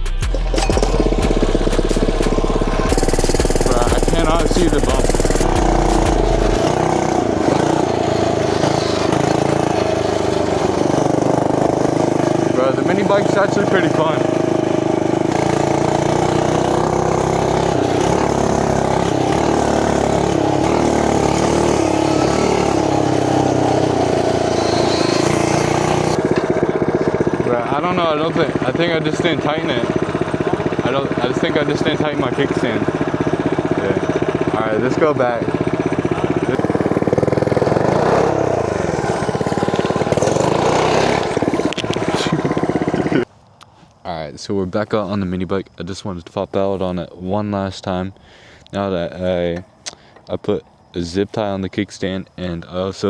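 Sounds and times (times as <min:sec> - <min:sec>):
mini bike engine revving: 0:00.3 - 0:43.3.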